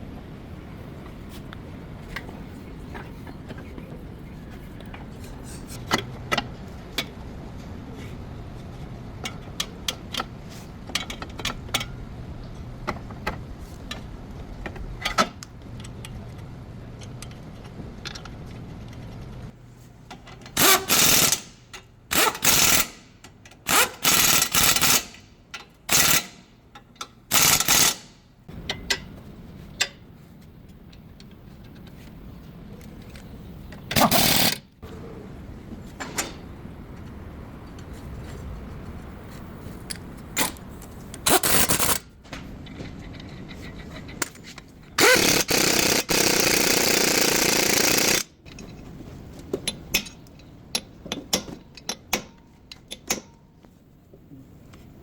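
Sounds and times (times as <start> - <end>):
pneumatic impact wrench bursts: 20.5 - 25.3, 25.9 - 26.5, 27.3 - 28.2, 33.9 - 34.7, 41.2 - 42.0, 45.0 - 48.3.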